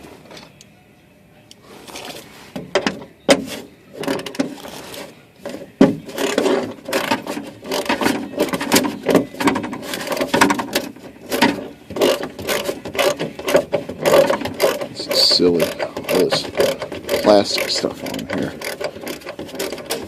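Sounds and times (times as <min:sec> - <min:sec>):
tools and plastic parts clicking: 0:04.0 - 0:20.0.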